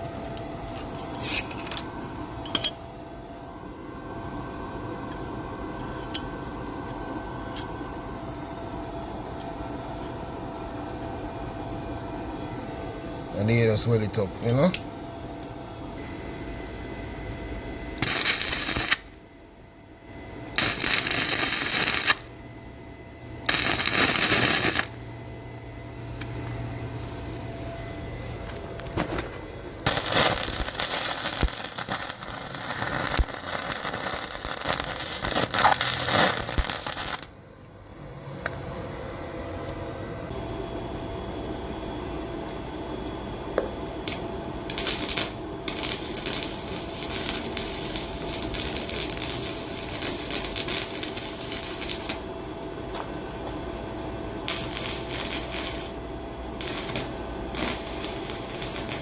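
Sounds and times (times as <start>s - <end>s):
welding arc crackling: 18.0s - 19.2s, 20.5s - 22.4s, 23.4s - 25.0s, 29.8s - 37.3s, 44.1s - 52.3s, 54.4s - 56.0s, 56.6s - 59.0s.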